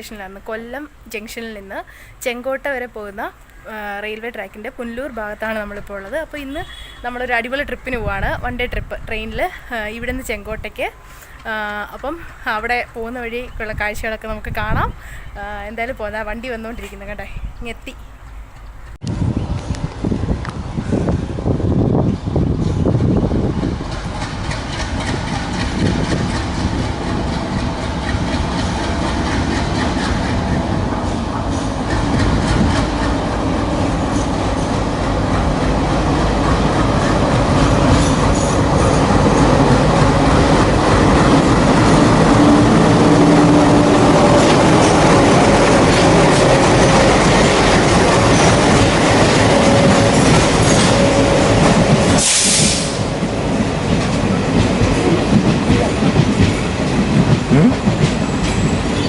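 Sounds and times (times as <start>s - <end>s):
train wheels clattering: 22.6s - 59.0s.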